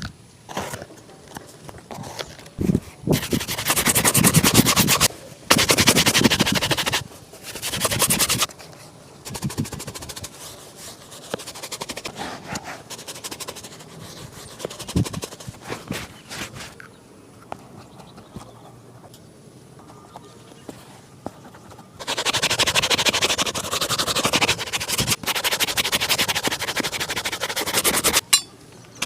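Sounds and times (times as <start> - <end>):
shoe brush strokes: 2.6 - 8.5, 9.3 - 16.8, 20.5 - 28.3.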